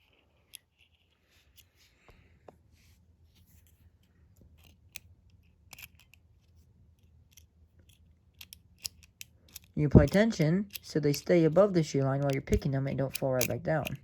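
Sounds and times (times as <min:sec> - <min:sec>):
lock pick clicking in padlock: 0:04.6 - 0:06.2, 0:07.3 - 0:14.0.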